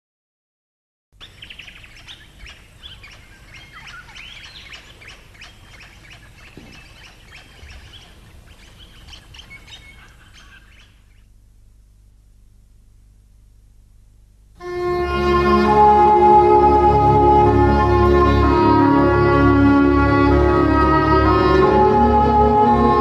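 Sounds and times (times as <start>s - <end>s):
birds chirping and calling: 1.2s - 11.3s
faint low hum: 1.2s - 16.8s.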